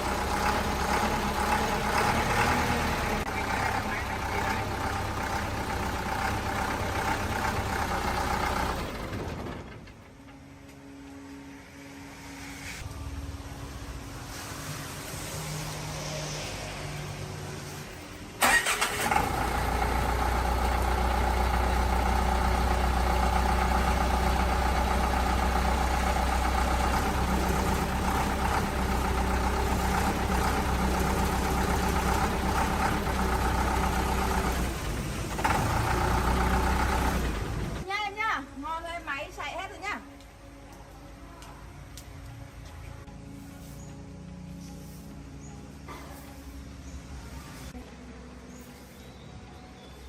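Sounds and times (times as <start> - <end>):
diesel engine starting and running: 0.0 - 49.9.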